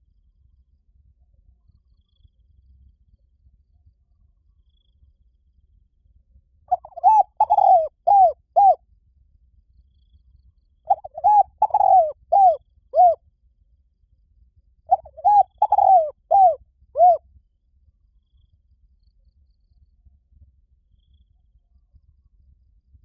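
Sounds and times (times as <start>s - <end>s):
dove cooing: 6.7s - 8.8s, 10.9s - 13.2s, 14.9s - 17.2s.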